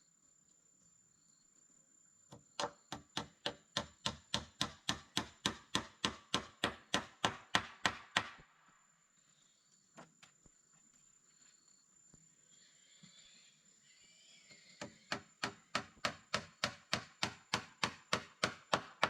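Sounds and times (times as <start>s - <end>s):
rapid chopping strikes: 2.6s - 8.4s, 15.1s - 19.0s.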